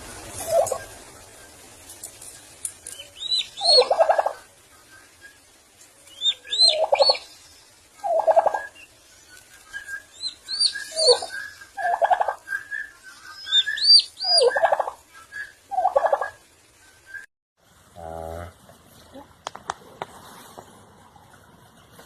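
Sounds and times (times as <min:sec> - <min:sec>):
turkey gobbling: 0:00.2 - 0:17.2
high arched chirps: 0:00.2 - 0:17.3.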